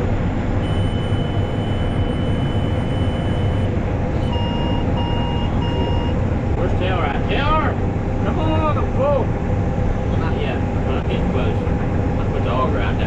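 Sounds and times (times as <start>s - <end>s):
combine harvester drone: 0.0s - 13.0s
electronic alarm beeps: 0.6s - 6.2s.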